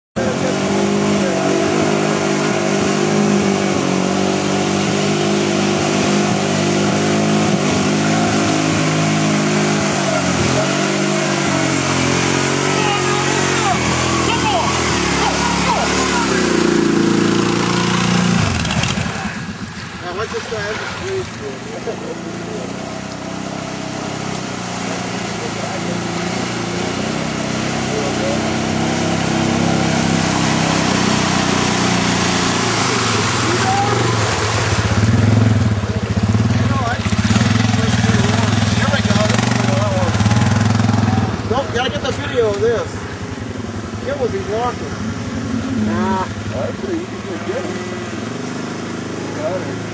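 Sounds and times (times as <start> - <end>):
atv engine running: 0.2 - 49.9.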